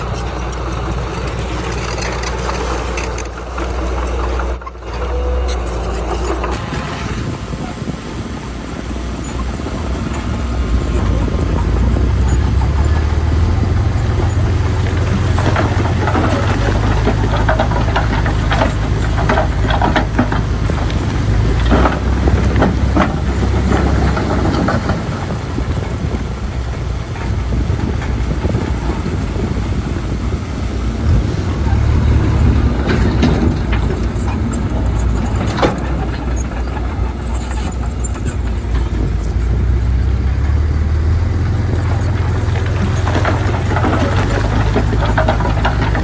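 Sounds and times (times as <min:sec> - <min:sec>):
bulldozer diesel engine: 0:00.0 - 0:46.0
steel tracks clanking and squealing: 0:00.0 - 0:46.0.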